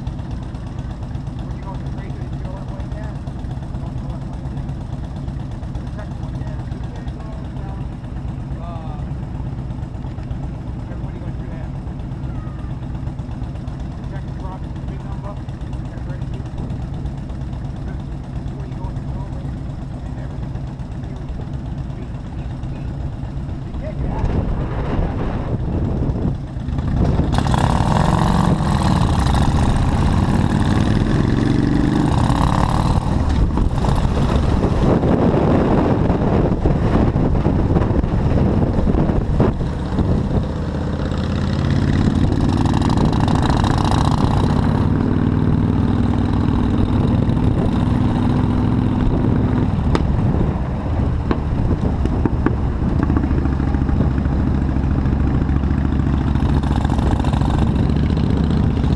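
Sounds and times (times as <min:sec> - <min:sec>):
motorcycle engine running: 0:00.0 - 0:58.9
wind rush on microphone: 0:23.7 - 0:45.9, 0:46.6 - 0:55.6.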